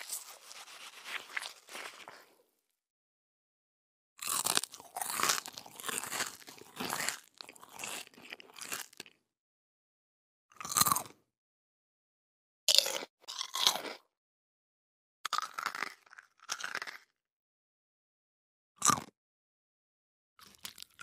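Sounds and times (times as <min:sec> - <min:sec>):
fruit crunching when chewed: 0:00.0 - 0:02.4, 0:04.2 - 0:09.2, 0:10.5 - 0:11.2, 0:12.7 - 0:14.0, 0:15.3 - 0:17.1, 0:20.4 - 0:21.0.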